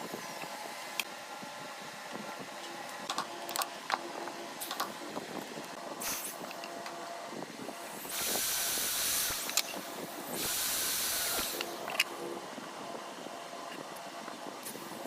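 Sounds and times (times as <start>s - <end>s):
compressed air hissing: 6.0s - 6.6s, 7.8s - 12.0s
air tool click: 10.4s - 12.1s.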